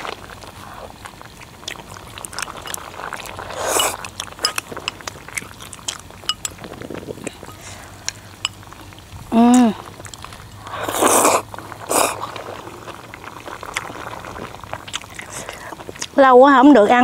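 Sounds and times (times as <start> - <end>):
chewing and wet mouth clicks: 0.0 - 16.2
light clinks: 6.3 - 6.6.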